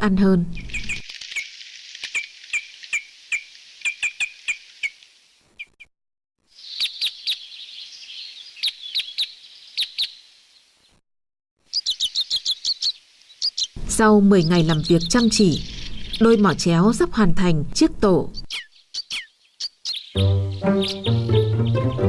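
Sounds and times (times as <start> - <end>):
songbirds chirping: 0.0 - 1.0, 6.5 - 11.0, 11.6 - 17.2, 17.8 - 22.0
background hiss of birds: 0.0 - 11.0, 11.6 - 22.0.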